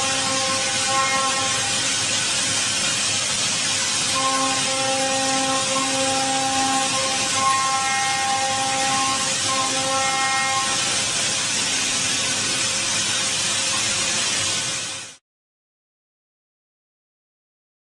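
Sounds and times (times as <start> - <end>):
machine tool cutting metal: 0.0 - 14.3.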